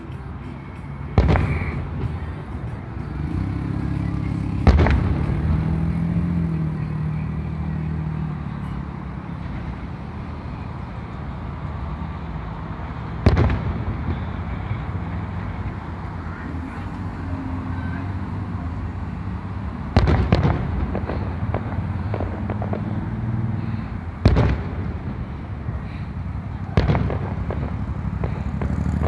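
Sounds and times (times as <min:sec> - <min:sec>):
passing vehicle engine hum: 0:00.0 - 0:29.0
firework shells booming: 0:01.2 - 0:02.3, 0:04.6 - 0:05.6, 0:13.2 - 0:14.6, 0:19.9 - 0:23.5, 0:24.2 - 0:25.9, 0:26.7 - 0:28.9.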